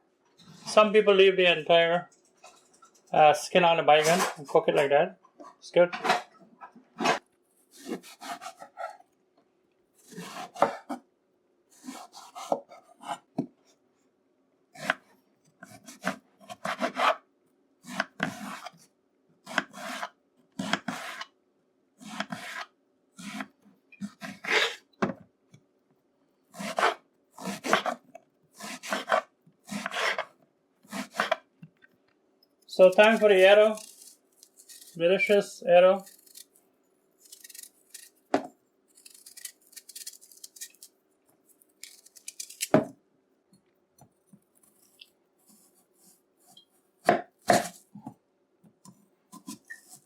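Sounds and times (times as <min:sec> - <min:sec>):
blade peeling eggplant: 0:32.8 - 0:35.0, 0:36.0 - 0:36.6, 0:37.2 - 0:38.3, 0:38.9 - 0:42.8.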